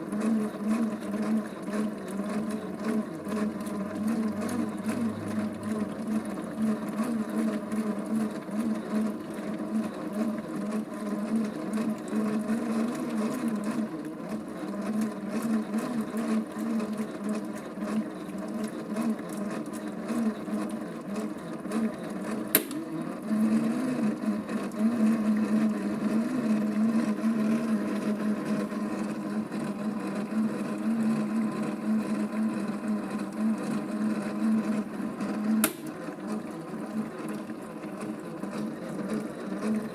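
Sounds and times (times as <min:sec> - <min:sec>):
sharp click: 0:22.5 - 0:22.8, 0:35.6 - 0:35.9.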